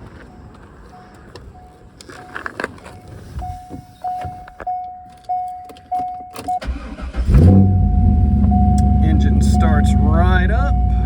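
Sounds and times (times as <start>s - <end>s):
keys clicking in ignition: 1.0s - 7.3s
starter cranking engine: 6.6s - 11.0s
electronic warning chime: 7.3s - 11.0s.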